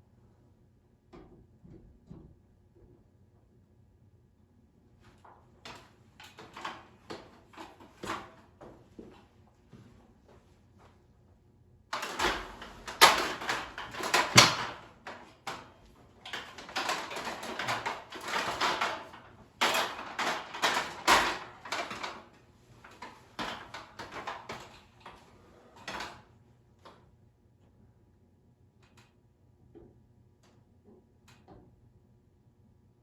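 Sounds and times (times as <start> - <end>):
hard parts clattering and scraping: 12.0 - 25.2.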